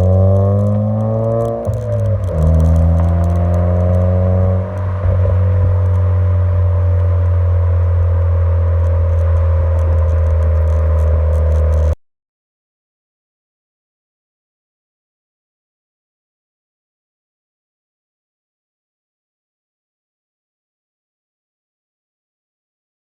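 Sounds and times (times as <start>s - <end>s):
car exhaust drone: 0.0s - 12.0s.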